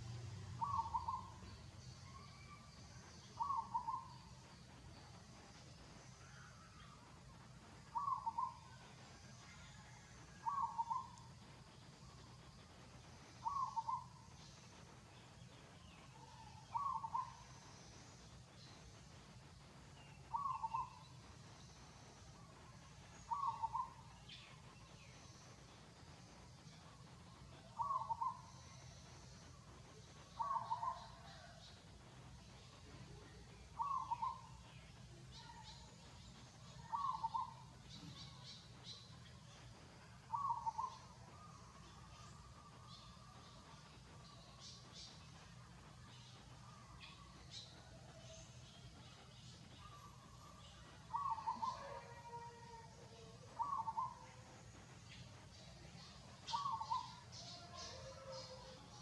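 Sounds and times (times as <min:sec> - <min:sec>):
faint high chirps: 0:00.0 - 0:59.0
bird call: 0:00.5 - 0:01.4, 0:07.9 - 0:08.7, 0:23.2 - 0:24.5, 0:30.3 - 0:31.6, 0:33.8 - 0:34.6, 0:36.8 - 0:39.1, 0:40.3 - 0:43.1, 0:49.8 - 0:54.4, 0:56.0 - 0:59.0.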